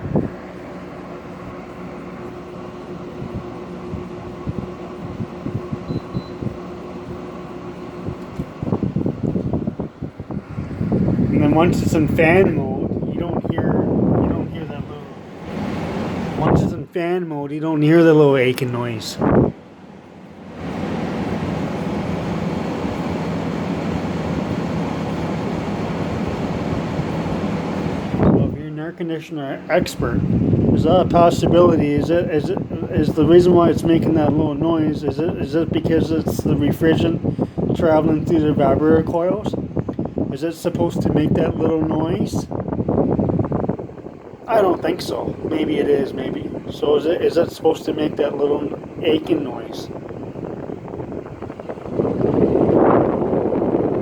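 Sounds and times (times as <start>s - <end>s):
air conditioner fan blowing: 0.0s - 54.0s
steady electrical hum: 0.0s - 54.0s.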